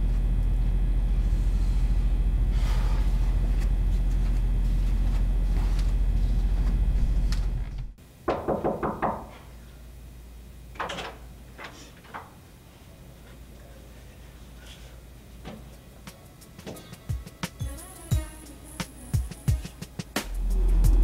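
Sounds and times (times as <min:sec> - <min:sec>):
steady low hum: 0:00.0 - 0:21.0
knocks on a door: 0:08.3 - 0:09.4.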